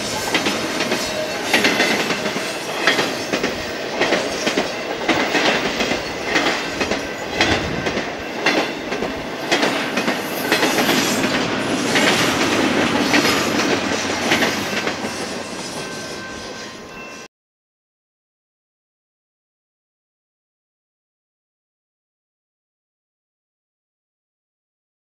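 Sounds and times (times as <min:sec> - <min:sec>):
freight train rumble: 0:00.0 - 0:17.3
freight train wheels clacking: 0:00.0 - 0:17.3.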